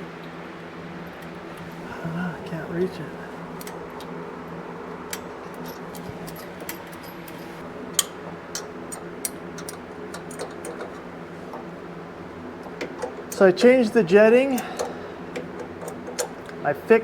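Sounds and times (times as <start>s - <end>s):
low hum: 1.1s - 8.0s
hand tools clicking and tapping: 5.1s - 11.7s, 12.6s - 13.5s, 14.5s - 16.6s.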